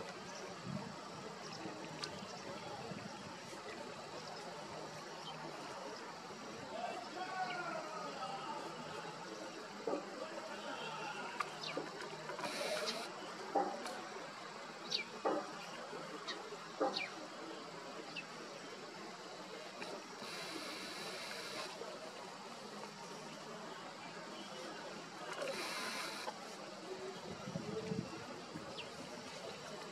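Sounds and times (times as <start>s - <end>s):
outdoor background hiss: 0.0s - 29.9s.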